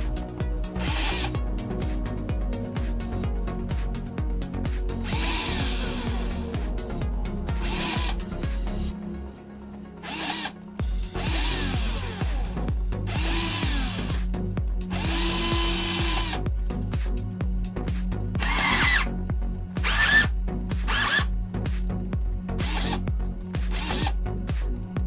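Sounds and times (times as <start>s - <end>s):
background music with low beat: 0.0s - 25.0s
cordless drill motor whining: 0.7s - 1.4s, 5.0s - 6.7s, 7.6s - 8.2s, 10.0s - 16.4s, 18.4s - 19.1s, 19.8s - 21.3s, 22.6s - 23.0s, 23.7s - 24.2s.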